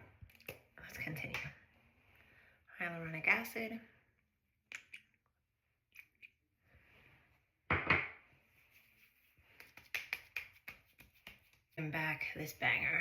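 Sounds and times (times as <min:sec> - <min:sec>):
soft brushing sound: 0:08.3 - 0:11.8.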